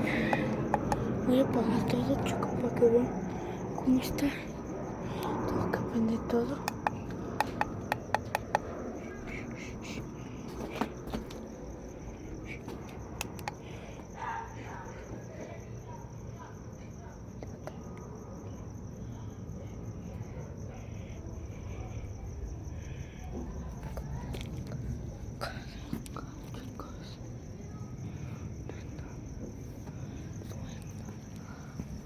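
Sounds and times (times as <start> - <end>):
crickets chirping: 0.0 - 32.0
faint clicks and knocks: 0.2 - 1.2, 6.6 - 9.4.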